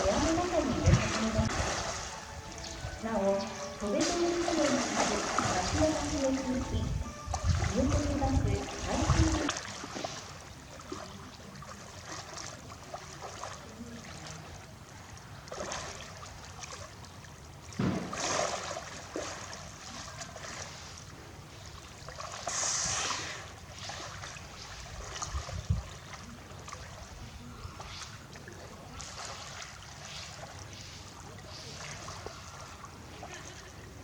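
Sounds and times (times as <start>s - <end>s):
water trickling: 0.0s - 17.8s
sudden loud splashes: 17.8s - 18.9s.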